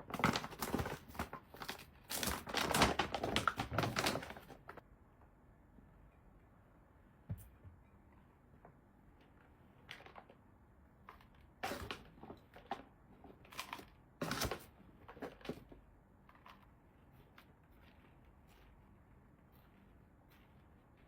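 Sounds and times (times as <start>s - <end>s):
objects knocked and rustled: 0.0s - 4.8s, 11.1s - 16.7s.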